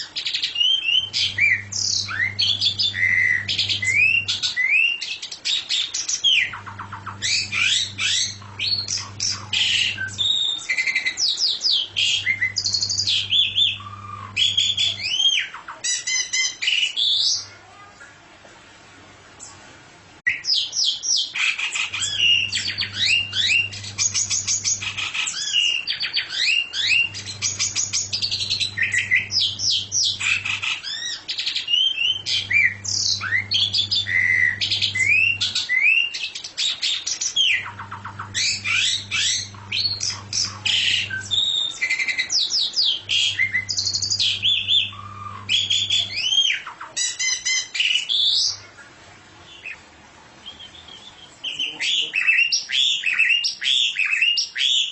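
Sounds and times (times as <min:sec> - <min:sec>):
songbird singing: 0:00.0 - 0:17.5, 0:20.3 - 0:49.8, 0:50.4 - 0:54.9
low hum: 0:01.0 - 0:04.4, 0:06.5 - 0:10.3, 0:11.9 - 0:15.1, 0:22.0 - 0:25.1, 0:26.9 - 0:30.6, 0:32.1 - 0:35.6, 0:37.6 - 0:41.4, 0:43.0 - 0:46.3.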